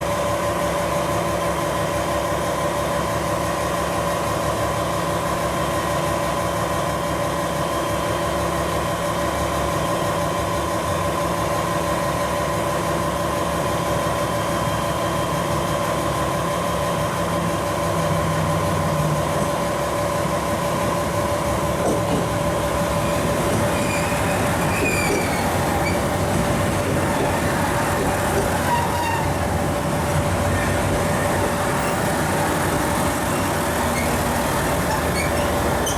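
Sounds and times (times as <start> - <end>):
diesel train engine hum: 0.0 - 35.9
train drawing in: 0.2 - 35.9
train wheel squeals: 22.0 - 35.9.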